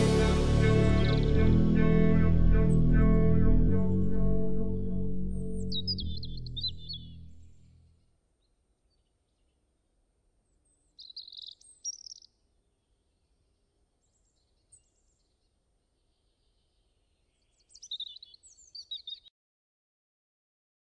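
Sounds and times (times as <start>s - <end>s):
birds chirping and singing: 5.3s - 7.4s, 11.0s - 12.3s, 17.4s - 19.3s.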